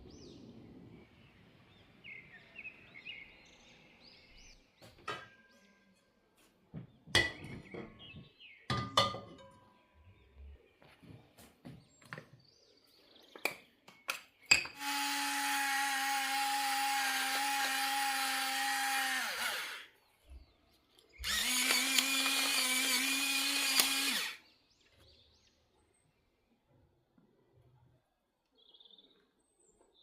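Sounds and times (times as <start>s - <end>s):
kitchen appliance motor whining: 14.8s - 19.9s, 21.2s - 24.4s
sharp clicks: 21.2s - 24.4s.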